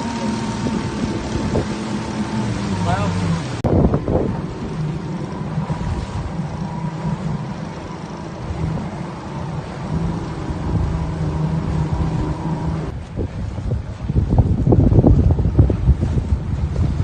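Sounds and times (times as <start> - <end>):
motorboat engine humming: 0.0 - 17.0.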